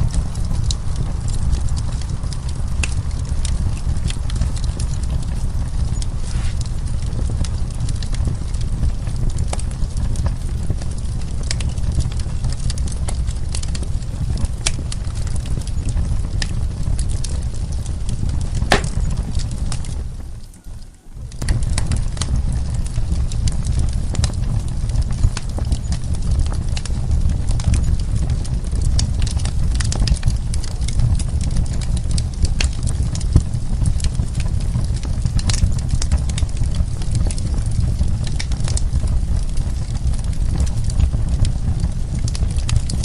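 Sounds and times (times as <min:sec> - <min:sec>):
wood fire crackling and popping: 0:00.0 - 0:43.0.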